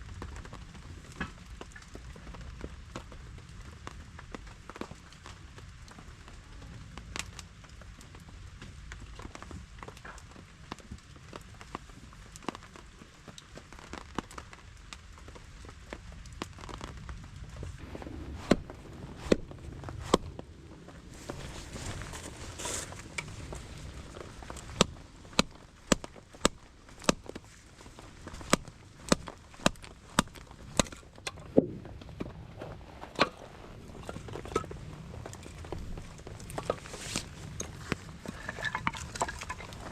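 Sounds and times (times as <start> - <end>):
firewood being split by hand: 15.8 - 32.2, 33.0 - 39.9.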